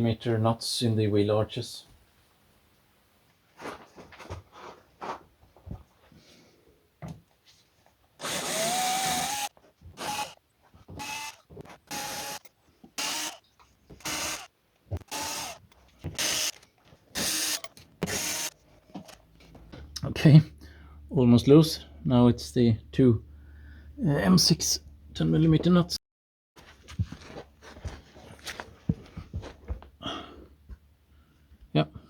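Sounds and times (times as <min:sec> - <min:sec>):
power drill-driver bursts: 0:08.2 - 0:10.4, 0:11.0 - 0:13.4, 0:14.0 - 0:18.6.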